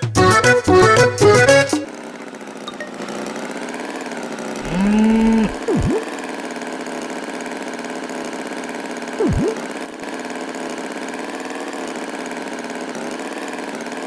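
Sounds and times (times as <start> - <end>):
engine hum: 0.7 - 8.1, 9.1 - 14.0
cow mooing: 4.6 - 5.6.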